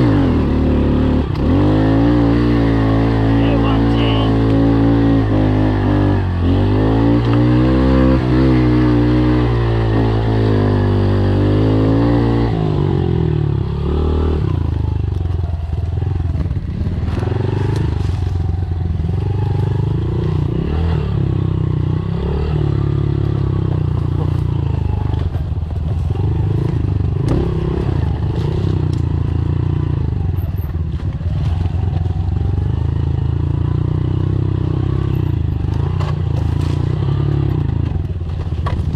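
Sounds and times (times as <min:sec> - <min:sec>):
dirt bike engine revving: 0:00.0 - 0:15.0, 0:16.0 - 0:30.4.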